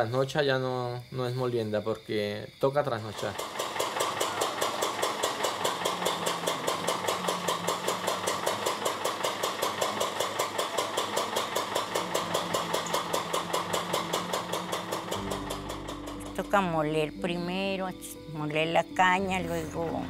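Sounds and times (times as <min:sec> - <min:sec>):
small gasoline engine running: 0:03.2 - 0:16.5.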